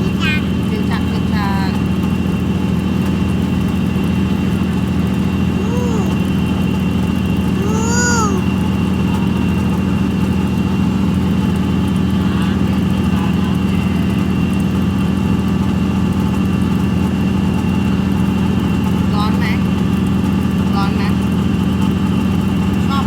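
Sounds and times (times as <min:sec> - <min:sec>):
short high voice: 0:05.6 - 0:06.2, 0:07.6 - 0:08.5.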